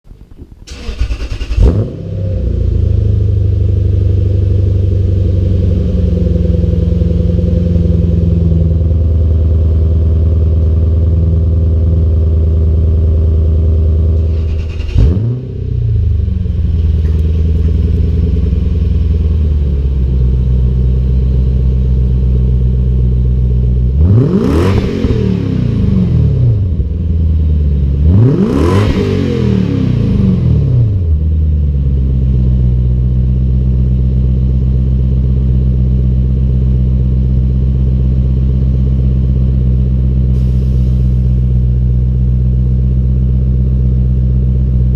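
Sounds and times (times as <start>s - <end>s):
car engine starting and idling: 0.1s - 44.9s
car engine revving: 0.7s - 9.3s, 14.0s - 22.7s, 23.8s - 31.3s.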